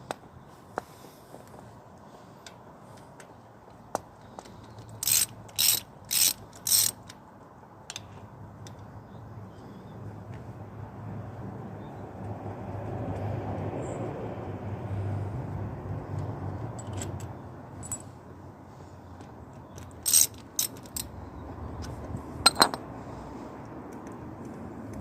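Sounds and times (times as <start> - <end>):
hand ratchet clicking: 5.0 - 7.1, 19.8 - 21.1
metallic clinks of tools: 16.8 - 18.1, 19.8 - 21.1.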